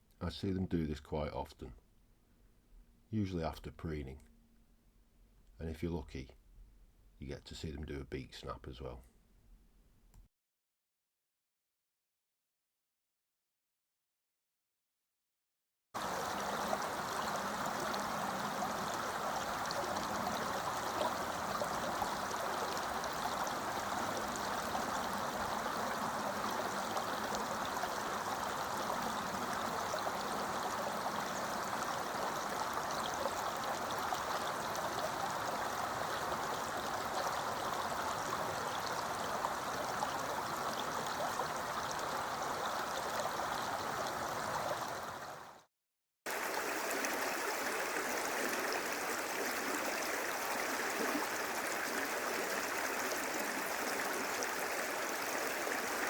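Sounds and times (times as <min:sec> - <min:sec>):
river water rushing over rocks: 0:16.0 - 0:45.4, 0:46.3 - 0:56.0.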